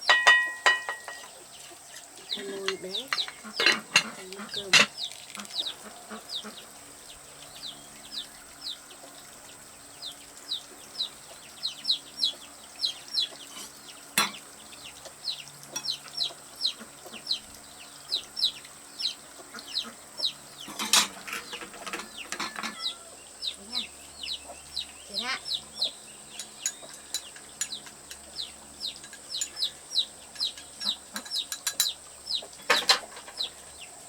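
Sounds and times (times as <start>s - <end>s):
chicks peeping: 1.2s - 34.0s.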